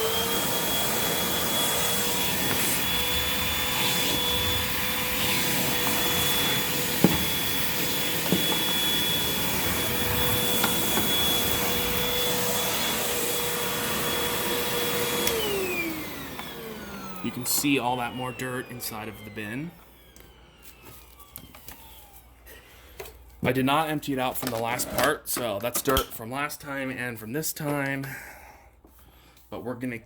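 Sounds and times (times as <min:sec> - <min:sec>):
upright vacuum motor whine: 0:00.0 - 0:22.4.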